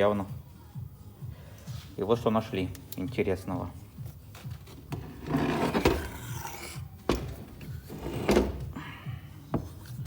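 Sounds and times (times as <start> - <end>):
background music: 0.0 - 10.0
parts knocking and thunking: 7.0 - 8.8.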